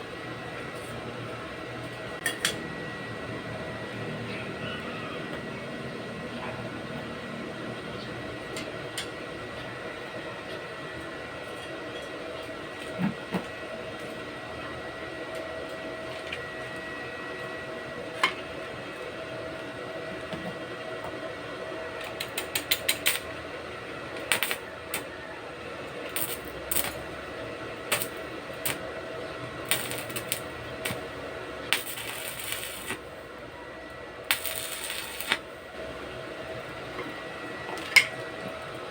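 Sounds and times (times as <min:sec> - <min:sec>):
faint steady hum: 0:25.9 - 0:38.9.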